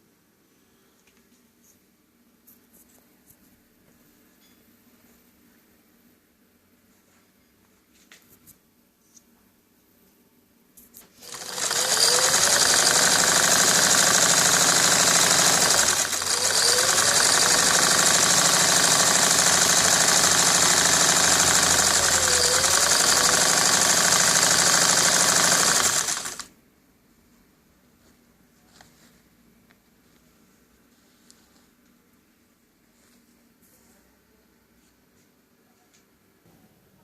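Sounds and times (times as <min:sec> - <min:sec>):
sewing machine running: 0:11.1 - 0:26.5.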